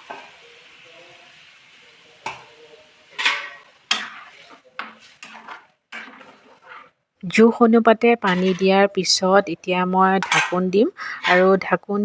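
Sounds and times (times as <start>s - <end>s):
spoon stirring in pot: 3.1s - 7.0s, 8.2s - 8.8s, 10.1s - 11.7s.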